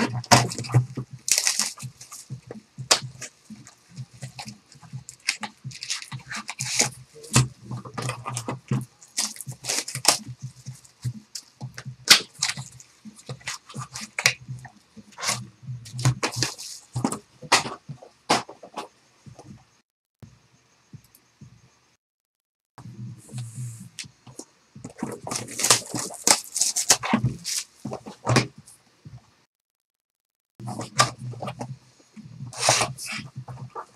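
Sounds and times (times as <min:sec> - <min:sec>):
wrapped packs rustling: 0:00.2 - 0:07.3, 0:09.0 - 0:14.4, 0:15.1 - 0:17.2, 0:25.1 - 0:27.8.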